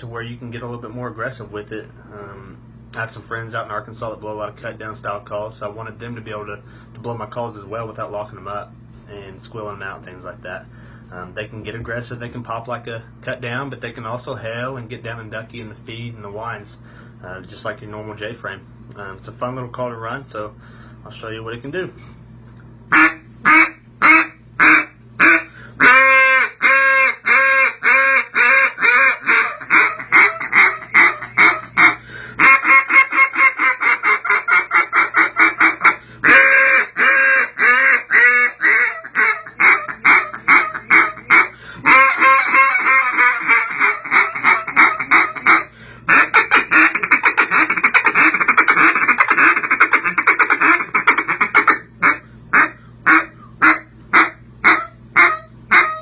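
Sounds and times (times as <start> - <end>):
duck call quacks: 22.9 - 56.0.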